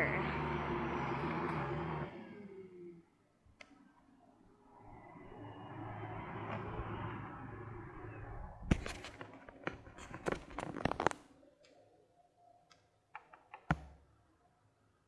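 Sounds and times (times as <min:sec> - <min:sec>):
robot vacuum running: 0:00.0 - 0:03.0
sharp plastic clicks and knocks: 0:12.7 - 0:14.0.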